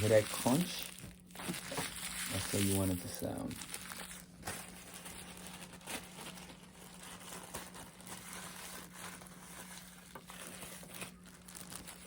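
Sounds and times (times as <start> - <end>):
tobacco leaf crunching: 0.0 - 9.7, 10.3 - 12.0
faint steady hum: 0.0 - 12.0
plastic bag crinkling: 0.0 - 12.0.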